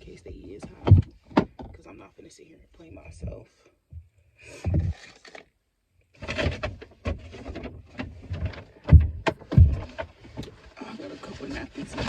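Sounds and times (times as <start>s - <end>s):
handling rustling: 6.2s - 12.0s.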